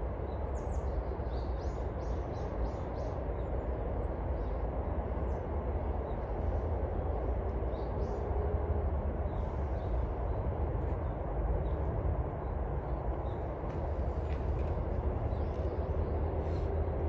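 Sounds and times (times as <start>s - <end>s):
low rumbling outdoor noise: 0.0s - 17.0s.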